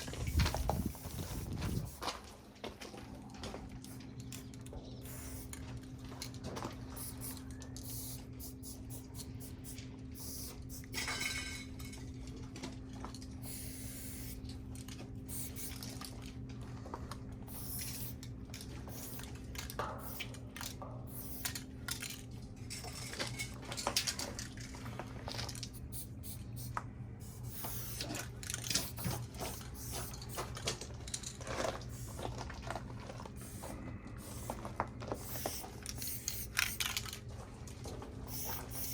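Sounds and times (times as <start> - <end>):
spray paint cans hissing: 0.0 - 2.1, 5.0 - 5.6, 6.8 - 11.1, 13.4 - 14.6, 15.2 - 15.9, 17.4 - 21.6, 25.7 - 30.6, 31.8 - 32.2, 33.4 - 37.2, 38.2 - 38.9.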